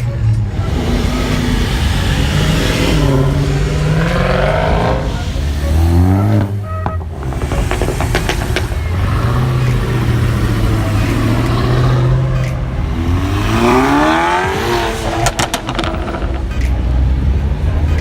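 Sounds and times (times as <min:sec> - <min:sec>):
car engine revving: 0:00.0 - 0:18.0
sharp cracks: 0:06.4 - 0:12.6.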